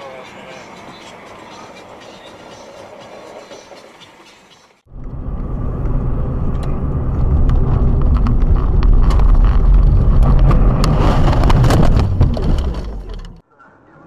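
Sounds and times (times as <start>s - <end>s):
engine and road rumble: 4.7s - 13.4s
sharp clicks and knocks: 7.4s - 13.4s.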